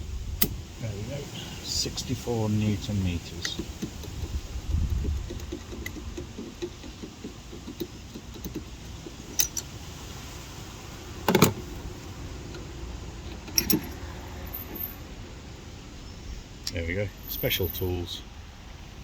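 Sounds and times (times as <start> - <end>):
metal tools clinking: 13.4 - 15.0.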